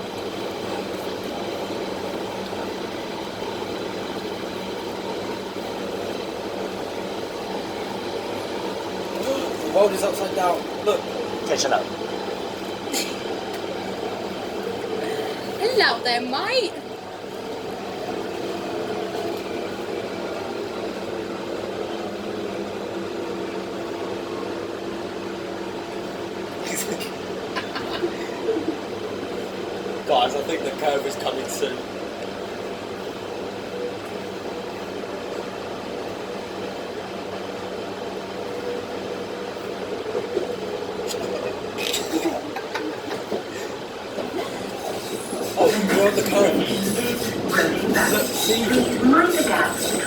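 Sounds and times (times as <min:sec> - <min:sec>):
underground train interior rumble: 0:00.0 - 0:50.0
steady low hum: 0:37.6 - 0:50.0.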